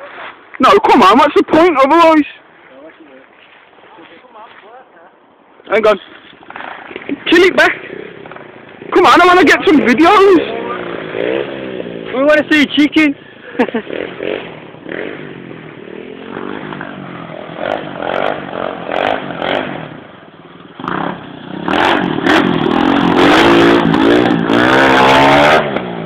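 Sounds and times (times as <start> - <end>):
motorbike engine revving: 6.4 - 12.6, 13.3 - 26.0.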